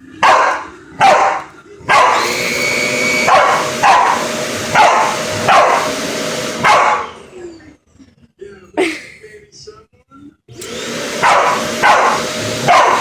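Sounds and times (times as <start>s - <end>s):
vacuum cleaner whine: 0.0s - 7.8s, 10.5s - 13.0s
dog barking: 0.2s - 2.3s, 3.2s - 6.0s, 6.6s - 7.2s, 11.2s - 13.0s.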